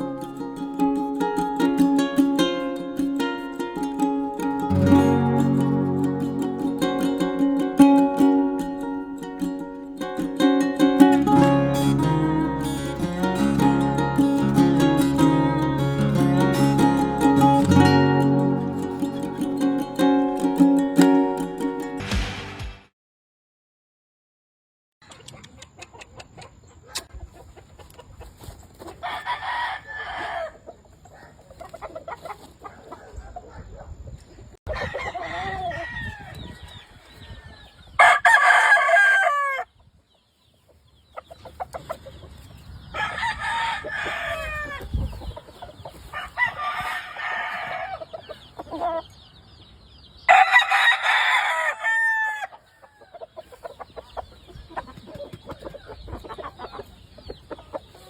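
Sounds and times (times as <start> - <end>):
farmyard background: 0.0 - 22.8, 25.0 - 58.0
chickens clucking: 25.0 - 38.7, 39.8 - 50.5, 51.5 - 58.0
roosters crowing: 29.0 - 31.3, 34.7 - 39.7, 42.9 - 44.9, 46.0 - 48.1, 50.3 - 53.6.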